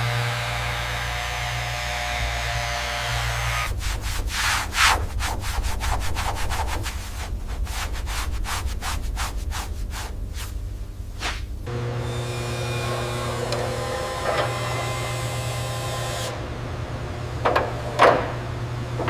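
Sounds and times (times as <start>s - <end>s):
low steady hum: 0.0s - 19.0s
sanding strokes: 3.4s - 10.6s.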